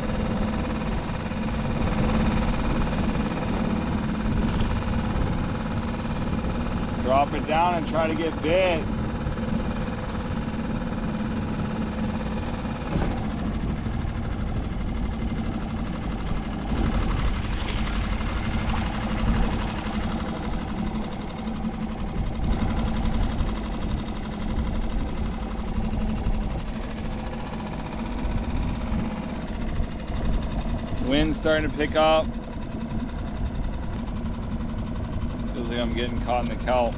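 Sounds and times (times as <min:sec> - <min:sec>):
wind rumbling on microphone: 0:00.0 - 0:07.2, 0:12.8 - 0:27.0
boat engine idling: 0:00.0 - 0:36.9.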